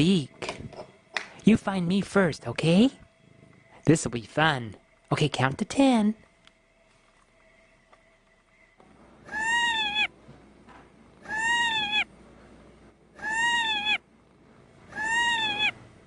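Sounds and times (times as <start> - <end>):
cat meowing: 9.3 - 10.1, 11.2 - 12.1, 13.2 - 14.0, 14.9 - 15.8.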